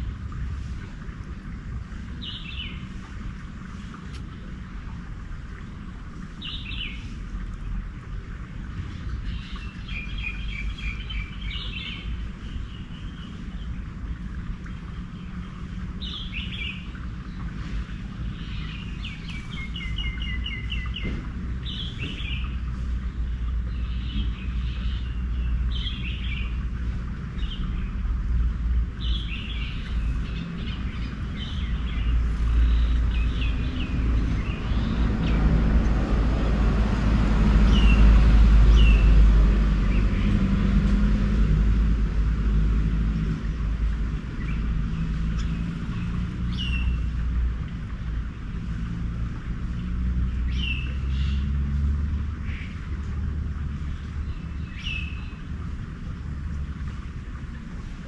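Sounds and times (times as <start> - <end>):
birds chirping: 2.1 - 3.1, 8.8 - 28.0, 28.9 - 36.2, 44.0 - 49.1, 49.7 - 51.6, 53.7 - 56.0.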